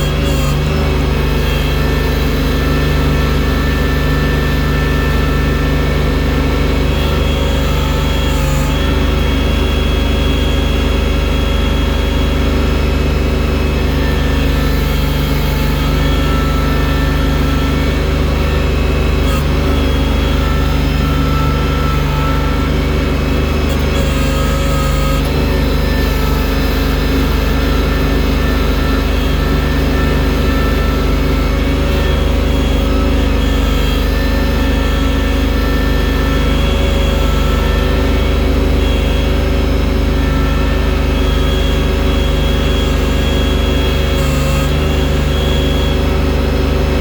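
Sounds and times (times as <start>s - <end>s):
loader engine under load: 0.0s - 47.0s.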